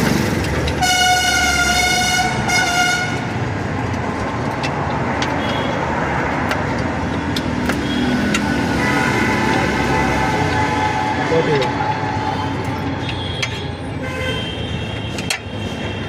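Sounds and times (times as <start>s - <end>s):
road traffic: 0.0s - 16.0s
vehicle horn: 0.8s - 3.3s, 13.2s - 16.0s.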